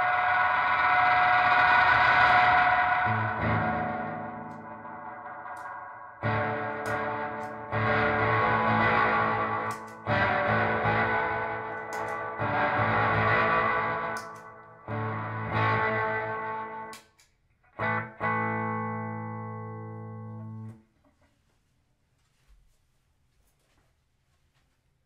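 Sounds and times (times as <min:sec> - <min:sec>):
electric guitar strumming chords: 0:00.0 - 0:17.0, 0:17.7 - 0:20.8.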